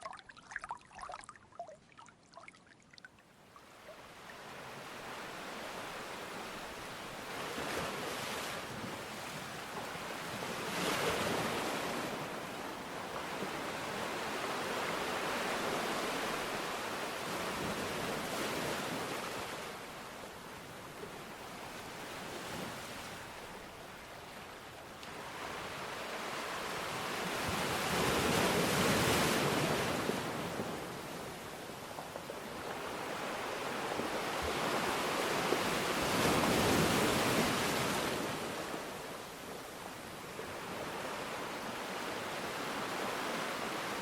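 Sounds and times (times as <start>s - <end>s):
ocean surf washing ashore: 32.5s - 44.0s.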